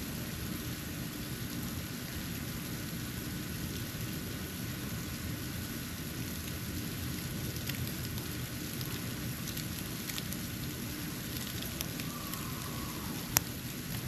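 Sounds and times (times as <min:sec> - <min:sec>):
steady hiss: 0:00.0 - 0:14.0
faint ticks of flakes landing: 0:07.5 - 0:14.0.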